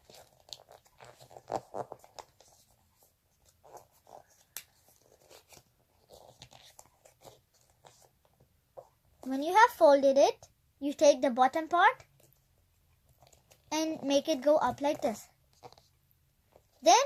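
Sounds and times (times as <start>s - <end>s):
paper folding and crinkling: 0.0s - 8.4s.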